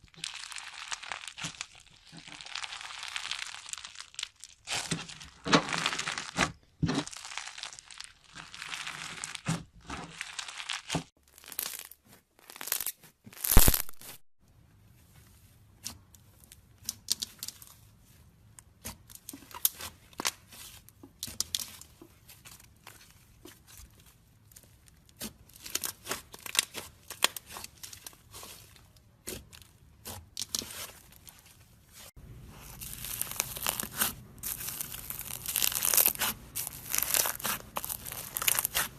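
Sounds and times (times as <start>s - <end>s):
slime crackling and popping: 0.1s - 14.2s, 24.5s - 31.4s, 32.4s - 38.9s.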